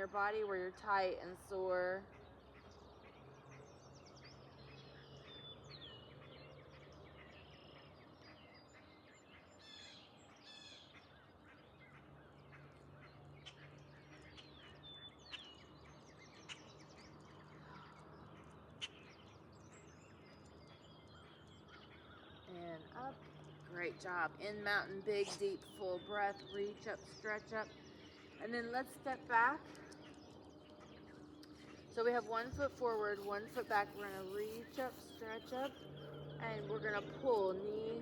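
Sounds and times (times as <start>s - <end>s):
low steady hum: 0.0s - 38.0s
birds chirping and whistling: 13.4s - 38.0s.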